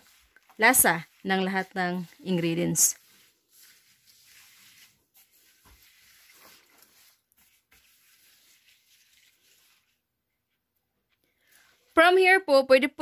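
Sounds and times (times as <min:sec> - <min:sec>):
spoon scraping in bowl: 0:00.0 - 0:09.9.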